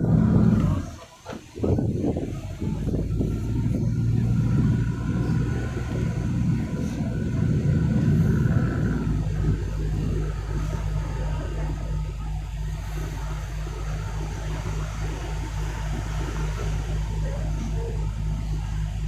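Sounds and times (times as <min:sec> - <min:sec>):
boat motor humming: 0:00.0 - 0:19.0.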